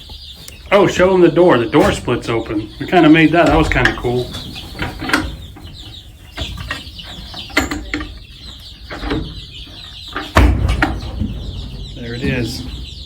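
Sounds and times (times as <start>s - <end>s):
chicks clucking and peeping: 0.0s - 13.0s
knocks: 10.1s - 13.0s
heavy thump: 10.4s - 13.0s.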